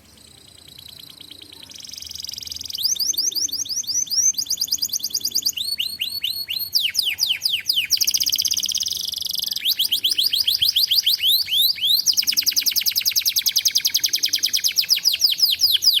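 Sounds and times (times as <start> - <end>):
canary singing: 0.0 - 16.0.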